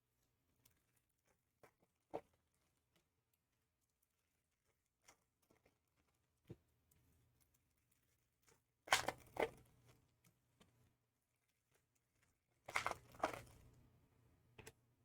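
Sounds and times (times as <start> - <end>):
foil wrapper tearing: 12.7 - 13.6.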